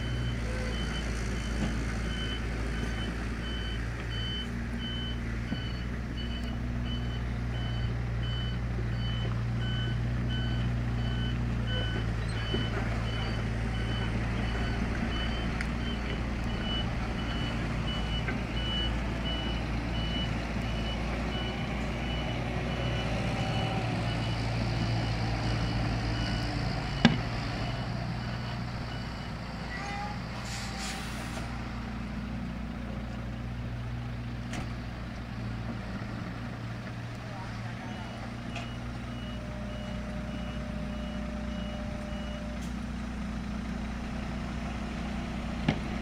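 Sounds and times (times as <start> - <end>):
diesel truck engine running: 0.0 - 46.0
reversing alarm beeps: 2.1 - 29.4, 37.8 - 42.6
short hiss of air: 30.4 - 31.5.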